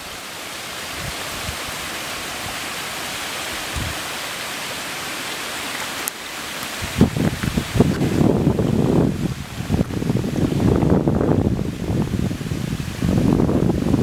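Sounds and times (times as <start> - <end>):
water rushing: 0.0 - 14.0.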